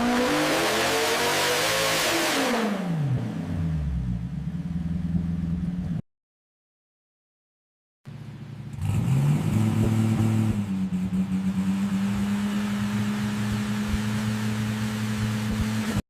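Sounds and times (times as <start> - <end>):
car engine starting and idling: 3.0 - 6.0, 8.1 - 16.0.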